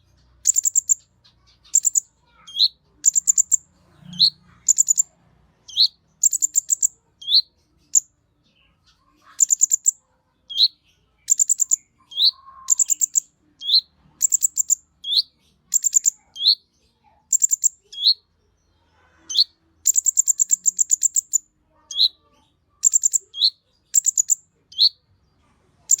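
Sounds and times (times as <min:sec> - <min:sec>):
bird singing high trills: 0:00.5 - 0:05.0, 0:05.7 - 0:07.5, 0:10.5 - 0:16.6.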